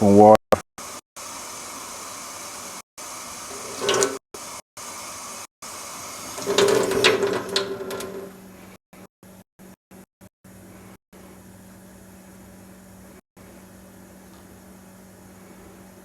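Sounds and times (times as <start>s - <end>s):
water running from tap: 3.4s - 4.2s, 5.8s - 8.5s.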